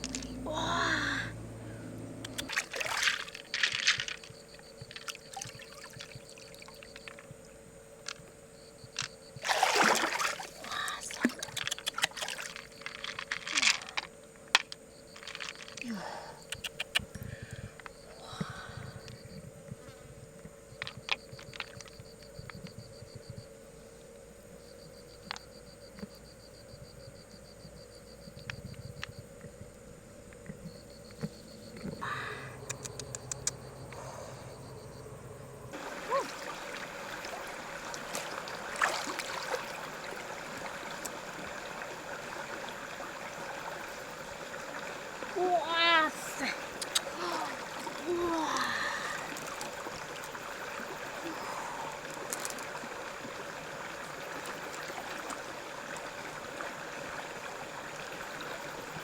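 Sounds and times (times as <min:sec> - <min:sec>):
water splashing and trickling: 0:00.0 - 0:08.2, 0:08.8 - 0:16.3, 0:30.8 - 0:59.0
insect trilling: 0:00.0 - 0:19.8, 0:30.4 - 0:59.0
faint sharp clicks: 0:16.4 - 0:18.0, 0:32.6 - 0:34.0, 0:46.8 - 0:47.1
small clicks: 0:32.6 - 0:33.6.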